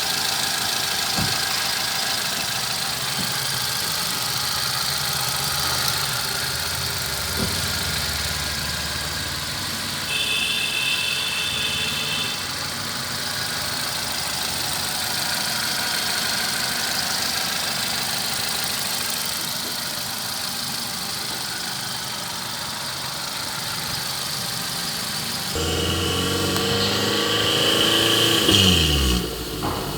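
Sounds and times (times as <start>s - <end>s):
car engine idling: 0.0s - 10.1s, 12.4s - 29.9s
high whine: 25.6s - 29.9s.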